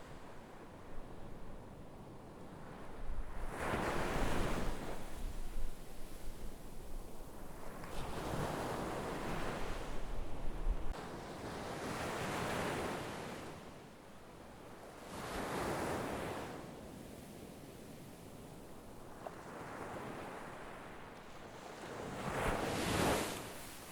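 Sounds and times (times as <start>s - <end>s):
sea waves breaking on shore: 7.3s - 13.8s, 14.9s - 16.9s, 18.6s - 23.9s.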